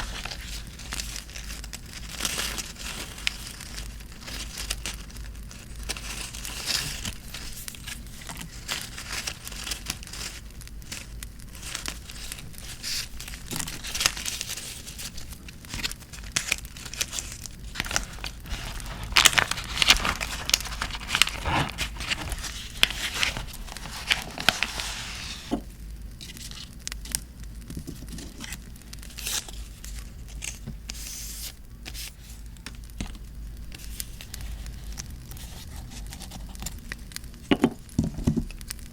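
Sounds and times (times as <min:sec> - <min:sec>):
paper being torn and crinkled: 0:00.0 - 0:25.6, 0:28.0 - 0:32.8.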